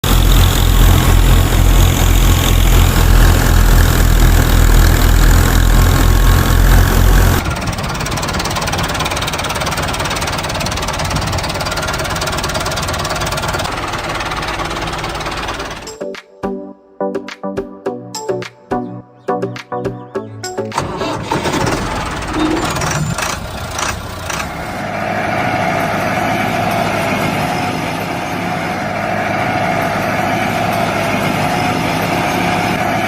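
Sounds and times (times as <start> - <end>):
hissing mechanical running: 0.0 - 15.9
small engine heavy beat: 0.0 - 16.0, 20.7 - 33.0.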